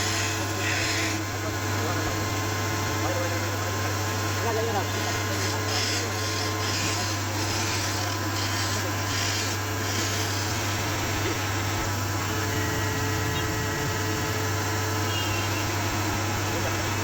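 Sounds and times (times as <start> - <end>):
steady low hum: 6.6 - 17.0.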